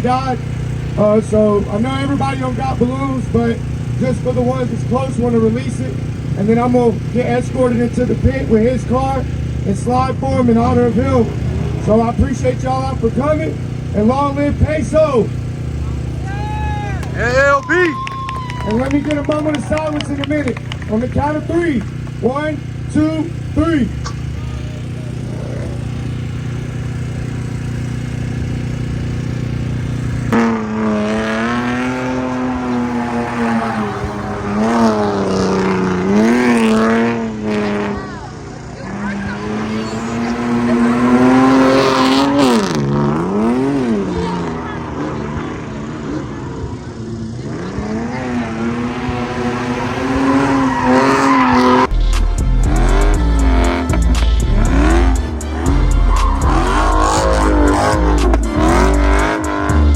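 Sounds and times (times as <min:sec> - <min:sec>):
car engine revving: 0:00.0 - 0:59.9
car engines idling: 0:00.0 - 0:59.9
tyre squeal: 0:38.1 - 0:42.4, 0:49.3 - 0:51.9, 0:55.4 - 0:59.4
music with heavy bass: 0:51.8 - 0:59.9.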